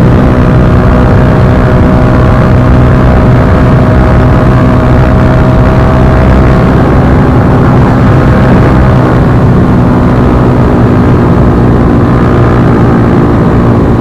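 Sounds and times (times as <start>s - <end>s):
motorcycle exhaust note: 0.0s - 14.0s.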